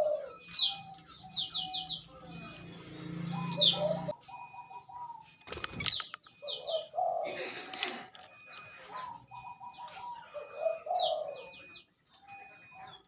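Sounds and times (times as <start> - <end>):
bird calls and whistles: 0.0 - 7.4, 8.4 - 13.0
sharp clicks: 5.4 - 6.4.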